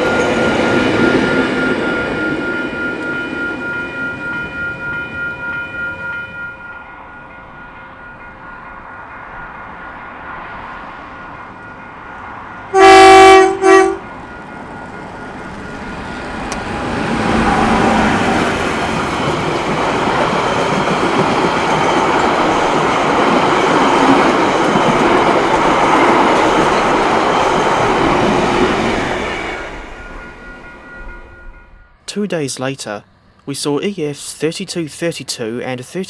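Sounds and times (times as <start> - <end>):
train wheels rumbling on rail: 0.0 - 31.9
locomotive horn: 12.7 - 14.2.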